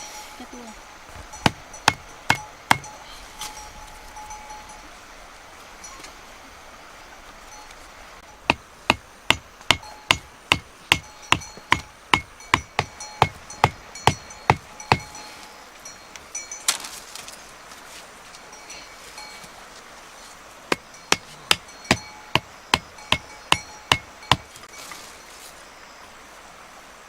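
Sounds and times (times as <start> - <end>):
hand tool knocking: 1.4 - 2.9, 8.5 - 15.2, 20.7 - 24.5.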